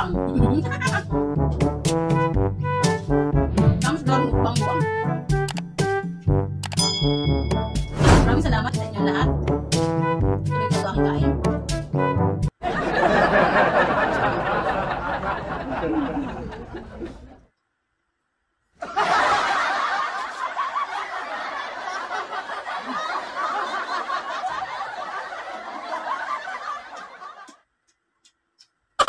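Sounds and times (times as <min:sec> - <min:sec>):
crowd laughing: 0:12.6 - 0:17.4, 0:18.8 - 0:27.6.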